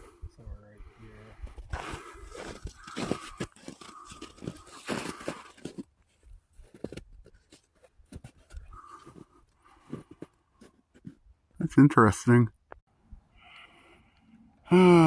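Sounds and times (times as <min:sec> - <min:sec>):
footsteps crunching on trail: 0:01.6 - 0:11.2.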